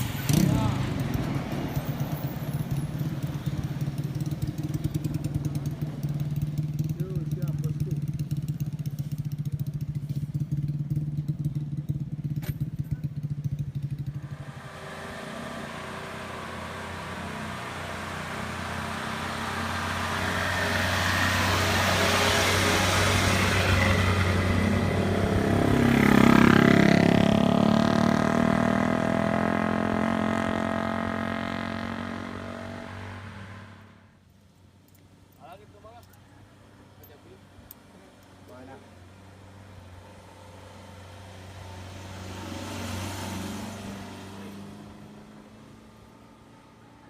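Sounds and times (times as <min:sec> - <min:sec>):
vehicle engine running close: 0:00.0 - 0:34.2, 0:34.8 - 0:47.0
vehicle passing by: 0:13.2 - 0:34.1, 0:36.5 - 0:47.0.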